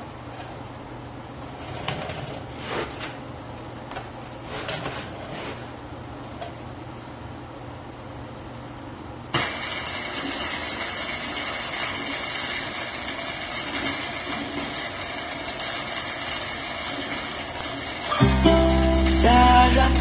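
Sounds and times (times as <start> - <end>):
engine starting and running: 9.4 - 20.0.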